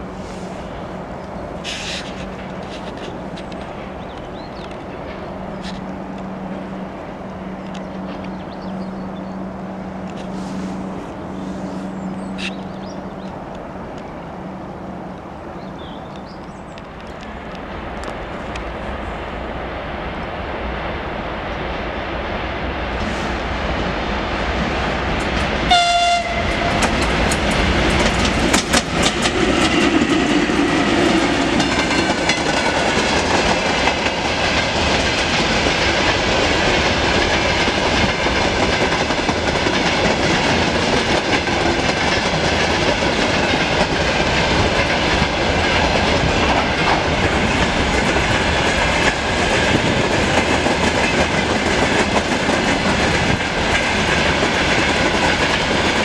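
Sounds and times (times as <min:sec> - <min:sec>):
wheels clacking over rail joints: 0:00.8 - 0:18.8, 0:24.5 - 0:56.0
locomotive horn blast: 0:25.7 - 0:27.1.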